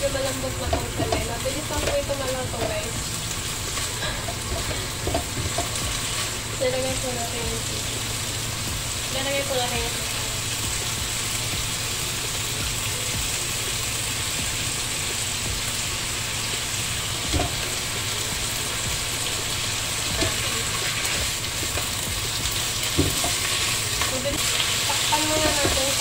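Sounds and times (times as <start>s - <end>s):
food sizzling in a frying pan: 0.0s - 26.0s
spatula knocking against pan: 0.6s - 2.8s, 4.2s - 6.0s.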